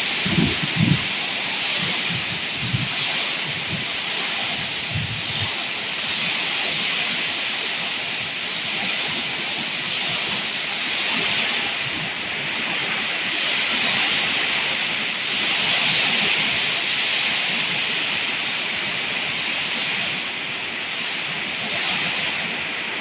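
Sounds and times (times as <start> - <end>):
torrential rain pouring: 0.0 - 23.0.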